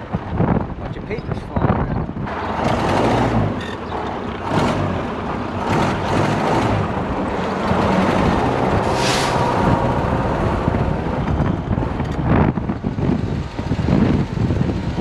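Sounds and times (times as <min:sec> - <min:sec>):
car engine running: 0:02.2 - 0:15.0.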